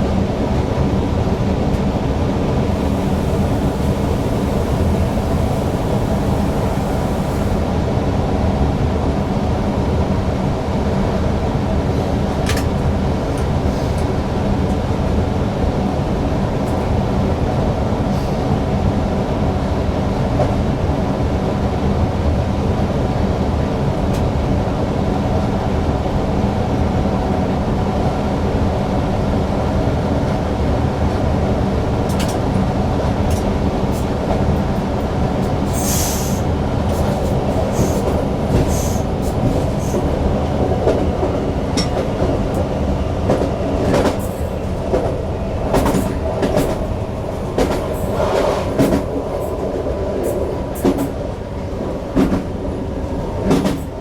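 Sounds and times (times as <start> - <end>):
train wheels rumbling: 0.0 - 8.2, 30.3 - 54.0.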